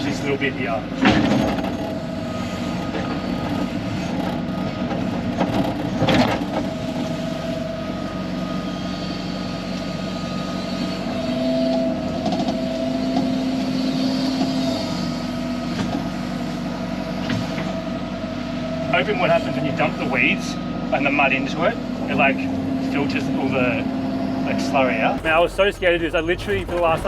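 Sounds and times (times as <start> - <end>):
excavator diesel engine running: 0.0 - 18.9, 25.2 - 27.0.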